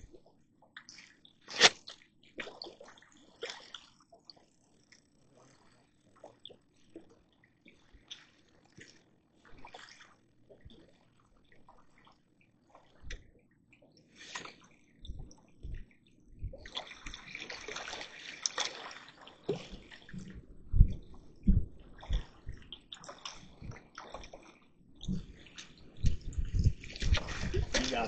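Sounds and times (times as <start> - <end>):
water splashing and sloshing: 0.0 - 28.0.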